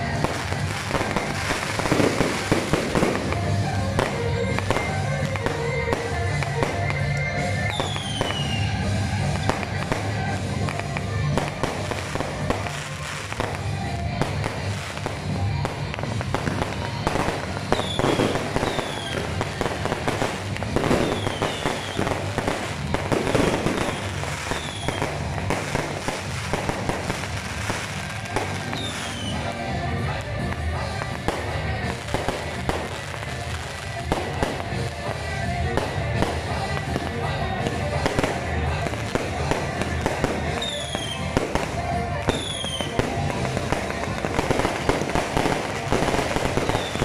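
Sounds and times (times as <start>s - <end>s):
background music: 0.0s - 47.0s
fireworks bangs and crackling: 0.0s - 47.0s
falling whistles: 7.5s - 8.8s, 23.8s - 25.0s.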